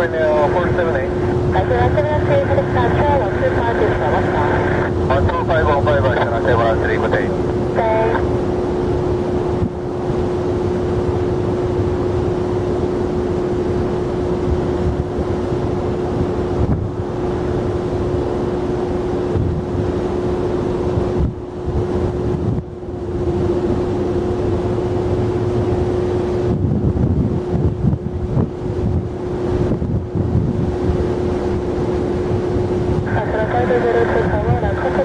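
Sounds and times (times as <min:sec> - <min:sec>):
jet engines rumbling: 0:00.0 - 0:26.6, 0:28.7 - 0:35.0
steady hum: 0:00.0 - 0:35.0
wind buffeting microphone: 0:13.8 - 0:35.0.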